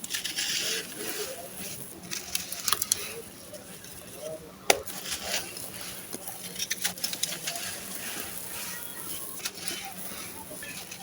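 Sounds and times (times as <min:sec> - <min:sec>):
cement chunks crumbling: 0:03.8 - 0:11.0.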